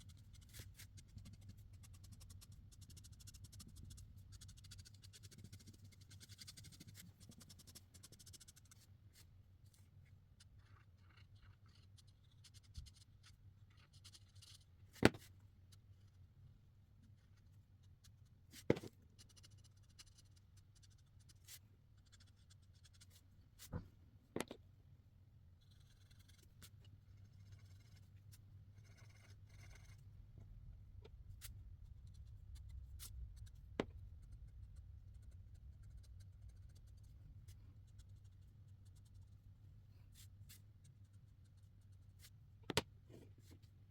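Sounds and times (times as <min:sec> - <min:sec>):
marker scratching on paper: 0:00.0 - 0:09.8, 0:10.4 - 0:15.1, 0:17.1 - 0:23.8, 0:25.6 - 0:30.0, 0:31.4 - 0:39.4.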